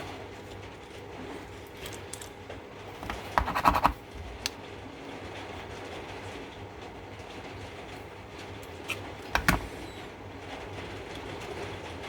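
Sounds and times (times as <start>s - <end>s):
tools scratching and clicking: 3.0s - 4.0s.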